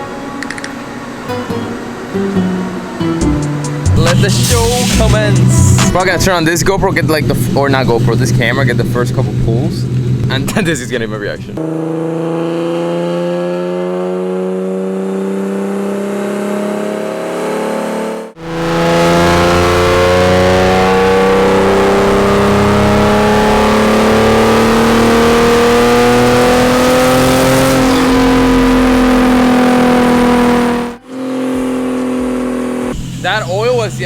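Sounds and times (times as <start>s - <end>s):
car engine revving under load: 11.5s - 34.0s.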